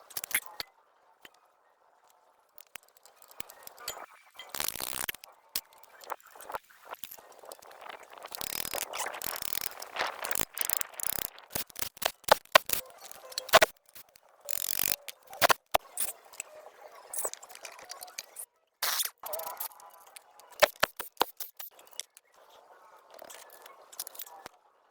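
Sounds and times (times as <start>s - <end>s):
hand tools clicking and scraping metal: 0.0s - 1.4s, 2.6s - 16.1s, 17.2s - 22.2s.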